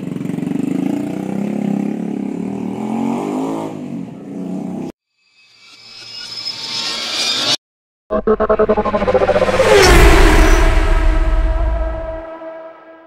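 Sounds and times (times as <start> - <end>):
music: 8.1 - 13.0.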